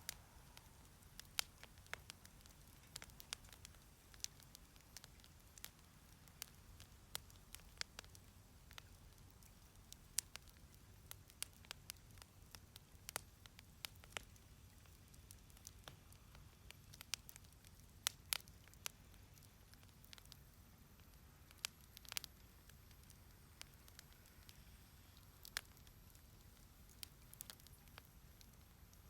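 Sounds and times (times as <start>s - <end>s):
low rumble of fire: 0.0s - 29.0s
wood fire popping and snapping: 0.0s - 29.0s.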